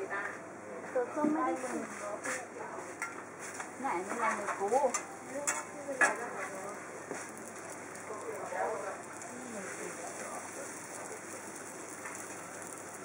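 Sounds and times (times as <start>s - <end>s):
pancake sizzling on griddle: 1.4s - 13.0s
metal spatula scraping griddle: 4.2s - 7.4s.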